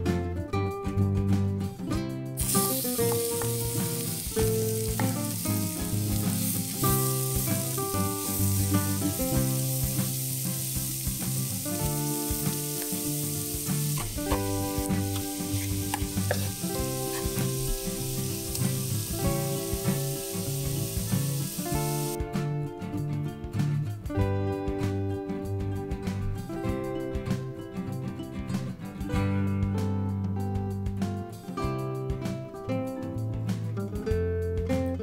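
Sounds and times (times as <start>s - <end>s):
herbs sizzling in oil: 2.4s - 22.2s
wooden spatula stirring: 14.0s - 17.5s.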